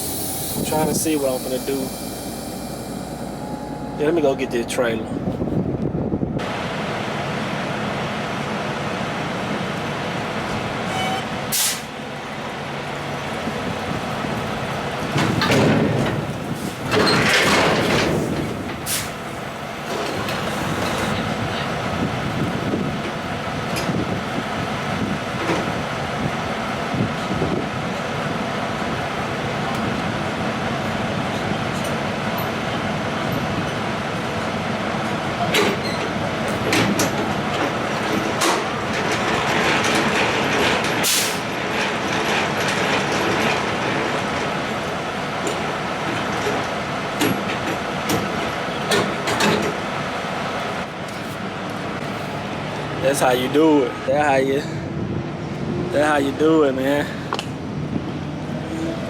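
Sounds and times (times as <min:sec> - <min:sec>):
air hiss: 0:00.0 - 0:03.5, 0:11.5 - 0:11.9
diesel truck engine running: 0:00.0 - 0:59.0.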